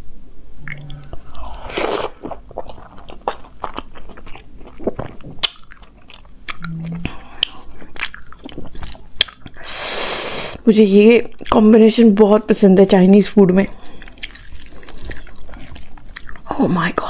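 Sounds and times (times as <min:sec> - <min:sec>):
closed-mouth hum: 0:00.0 - 0:05.6, 0:06.4 - 0:10.7
chewing with wet smacks: 0:00.7 - 0:09.6, 0:13.7 - 0:16.5.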